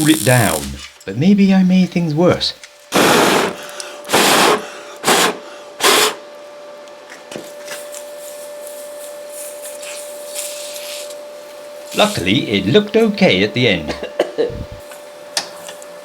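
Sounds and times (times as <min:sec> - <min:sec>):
spraying hiss: 0:00.0 - 0:00.8
faint steady hiss: 0:00.0 - 0:02.9
thin steady whine: 0:00.0 - 0:16.0.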